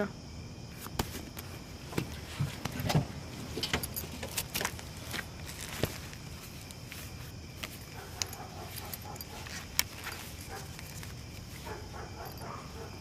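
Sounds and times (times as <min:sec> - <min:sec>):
light metallic clicks and clinks: 0:03.5 - 0:06.8, 0:07.6 - 0:13.0.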